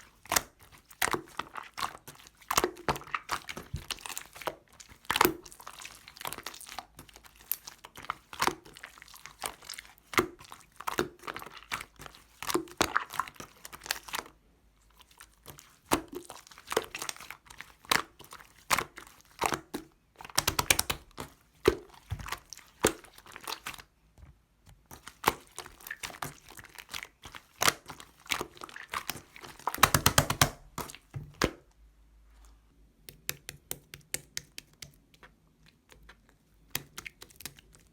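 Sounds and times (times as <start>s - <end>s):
slime crackling and clicking: 20.3s - 21.3s, 33.1s - 37.9s.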